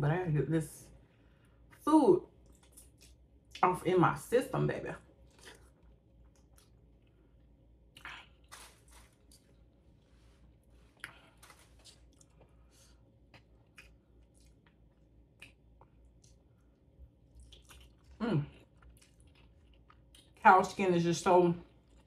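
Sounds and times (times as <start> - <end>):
person chewing: 2.4 - 3.3, 5.2 - 9.8, 10.7 - 20.4.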